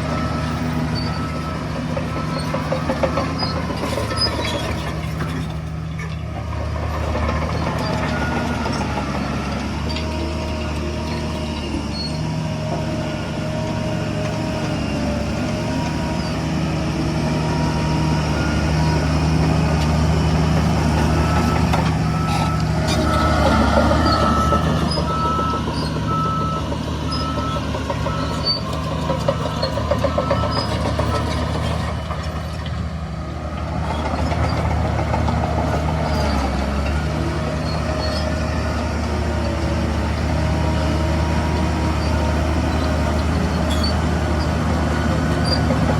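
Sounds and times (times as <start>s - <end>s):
diesel construction machinery running: 0.0s - 45.9s
reversing alarm beeping: 21.0s - 31.5s.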